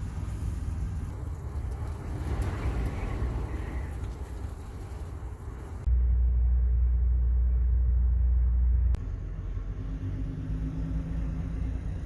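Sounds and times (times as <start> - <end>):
wind buffeting microphone: 0.0 - 5.9
steady low hum: 0.0 - 10.3.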